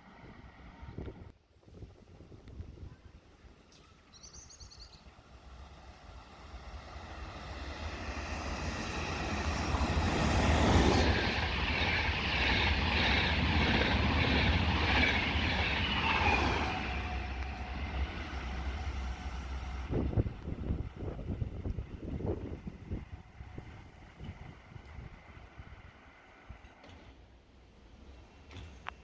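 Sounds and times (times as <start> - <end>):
train passing: 3.3 - 28.7.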